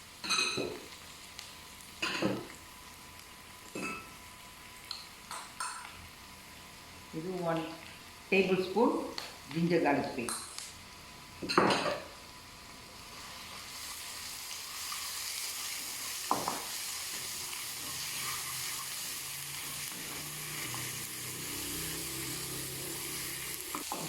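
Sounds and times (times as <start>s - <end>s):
paste sizzling in hot oil: 12.8s - 24.0s.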